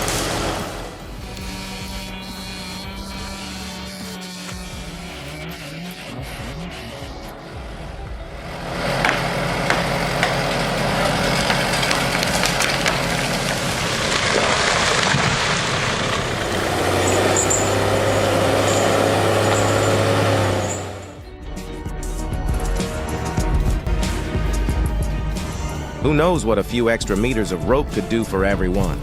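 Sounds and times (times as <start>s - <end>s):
crackling splintering noise: 0.0s - 21.2s
heavy engine running: 0.0s - 21.3s.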